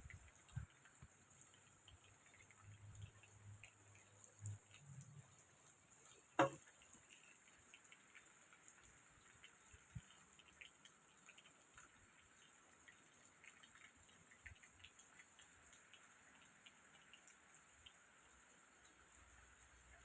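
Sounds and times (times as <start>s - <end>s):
water drops dripping: 0.0s - 20.0s
sharp knock: 6.4s - 6.6s.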